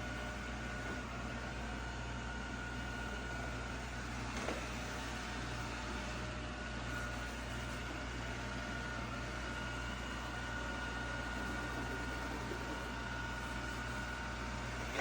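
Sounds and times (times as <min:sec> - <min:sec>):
robot vacuum whirring: 0:03.0 - 0:06.0, 0:06.8 - 0:15.0.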